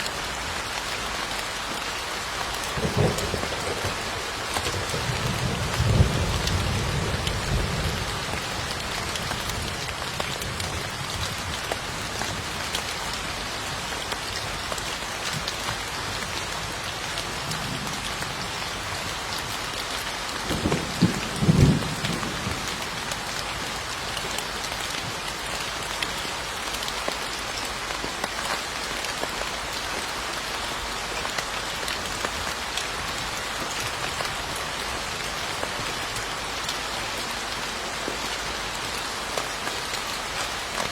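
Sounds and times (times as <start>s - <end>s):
steady rain falling: 0.0s - 40.9s
low thunder rumbling: 2.8s - 9.8s, 20.4s - 23.0s.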